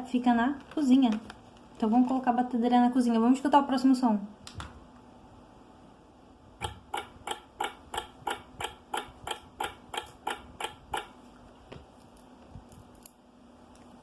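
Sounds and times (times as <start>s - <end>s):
clock ticking: 6.6s - 11.1s.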